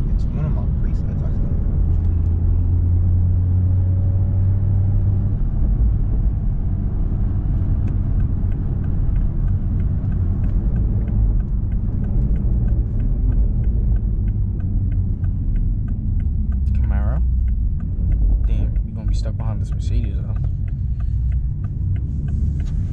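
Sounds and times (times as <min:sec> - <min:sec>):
car road and engine rumble: 0:00.0 - 0:22.9
light ticking: 0:05.3 - 0:22.9.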